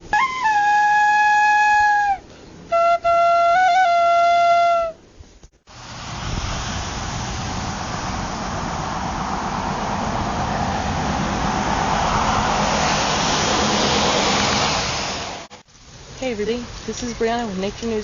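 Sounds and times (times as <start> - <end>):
long flute-like notes: 0.0 - 5.0
steady hiss and rumble: 0.0 - 18.0.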